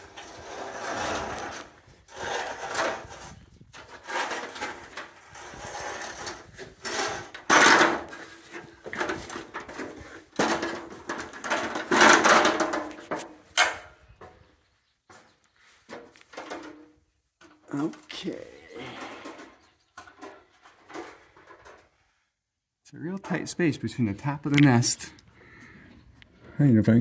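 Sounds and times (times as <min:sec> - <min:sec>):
ladder scraping: 0:00.0 - 0:14.4, 0:15.1 - 0:22.0.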